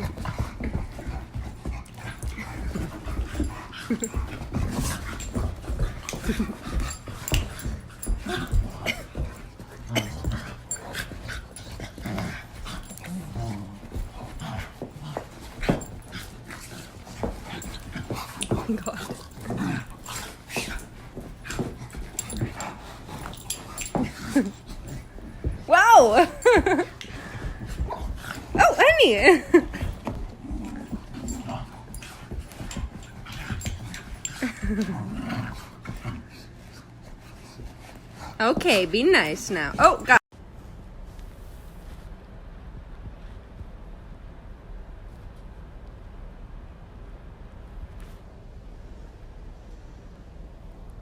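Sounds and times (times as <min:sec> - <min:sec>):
dog panting and whimpering: 0:00.0 - 0:40.2.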